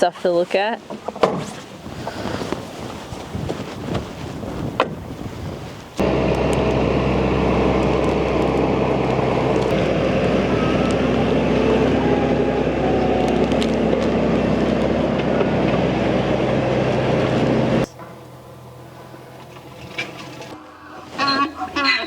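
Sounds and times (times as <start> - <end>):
small vehicle engine running: 6.0 - 22.0.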